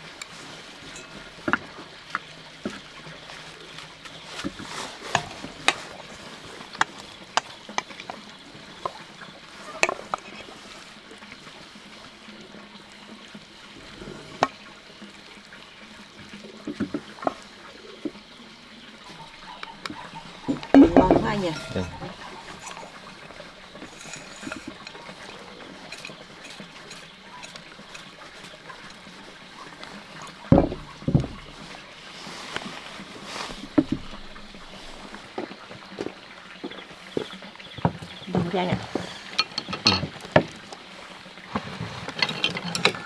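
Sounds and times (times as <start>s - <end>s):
chopsticks clinking on bowls: 0.1s - 1.7s, 4.6s - 9.0s, 9.6s - 10.5s, 19.1s - 31.6s, 38.8s - 40.7s.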